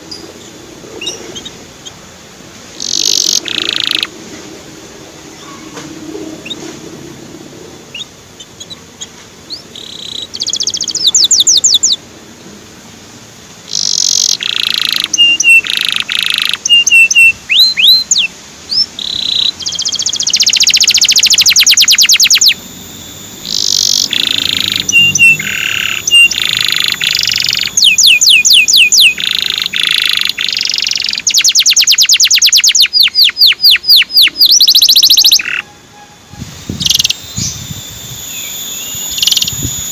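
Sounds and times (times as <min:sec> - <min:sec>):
canary singing: 0:02.7 - 0:04.2, 0:07.9 - 0:12.0, 0:13.7 - 0:39.9.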